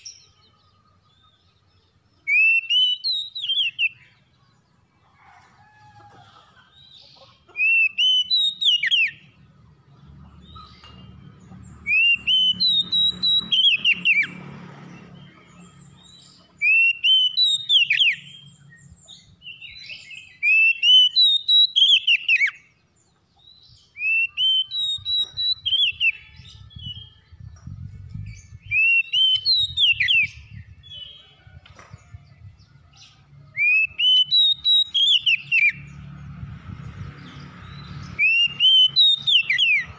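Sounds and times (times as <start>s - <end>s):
songbird singing whistled phrase: 2.3s - 4.0s, 24.0s - 27.0s, 28.6s - 30.4s, 33.6s - 35.8s, 38.2s - 39.9s.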